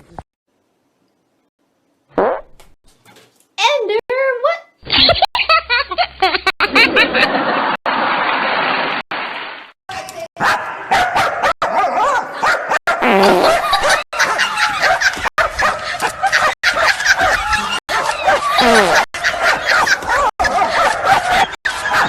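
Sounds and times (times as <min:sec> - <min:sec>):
dogs yipping and barking: 0:10.4 - 0:22.0.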